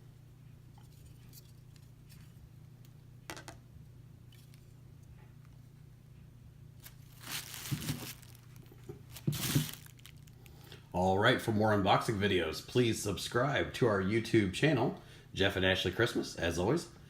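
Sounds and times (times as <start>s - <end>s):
faint low hum: 0.0s - 17.0s
packaging rustling and crinkling: 6.8s - 10.6s.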